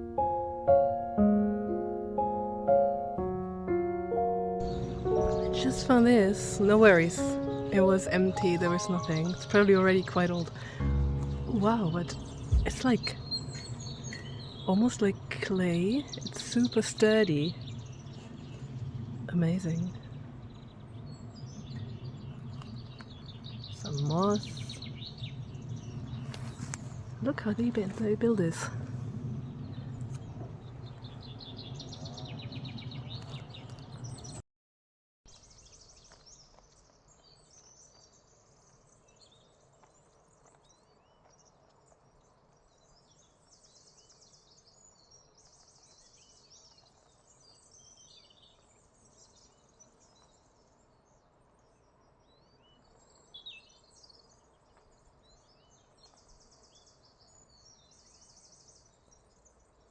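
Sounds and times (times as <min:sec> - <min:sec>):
low rumble: 0:04.6 - 0:15.5
bird warbling song: 0:04.6 - 0:34.4, 0:35.3 - 0:59.9
birds chirping and calling: 0:04.6 - 0:34.4.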